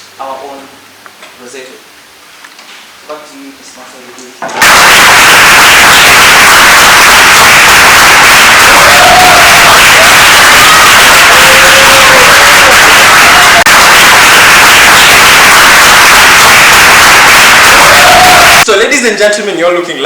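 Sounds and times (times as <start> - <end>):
audience applauding: 4.6 - 18.7.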